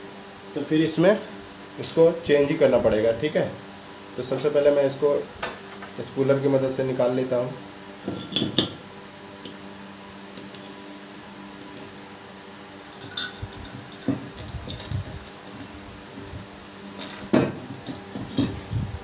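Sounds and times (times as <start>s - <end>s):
faint steady hum: 0.0s - 19.0s
metal tool clinking and scraping: 13.0s - 14.1s.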